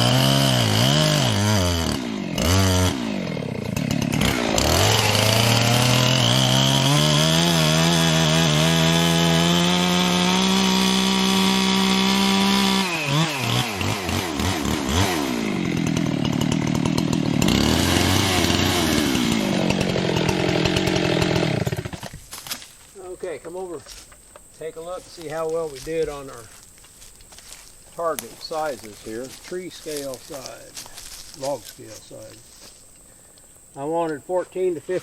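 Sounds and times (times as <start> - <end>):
chainsaw cutting into wood: 0.0 - 22.6, 27.4 - 31.8.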